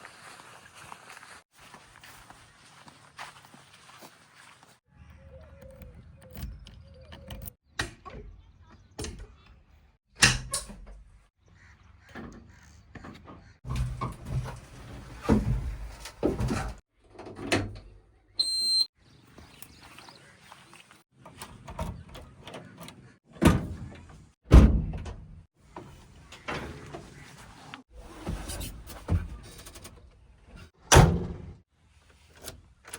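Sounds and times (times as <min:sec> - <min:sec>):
metal clanks and thuds: 0:13.0 - 0:17.8, 0:23.4 - 0:27.0
short high beep: 0:18.4 - 0:18.9.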